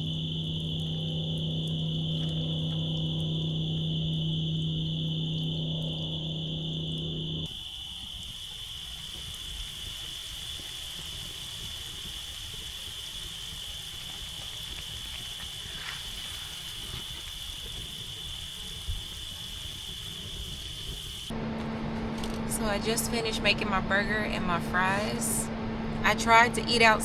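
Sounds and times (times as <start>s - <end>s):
insects droning: 0.0s - 27.0s
steady hiss: 7.5s - 21.3s.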